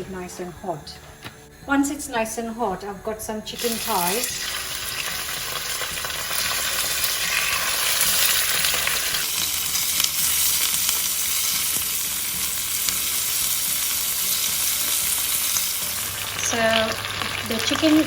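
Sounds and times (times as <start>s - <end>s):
chicken sizzling in oil: 3.6s - 18.0s.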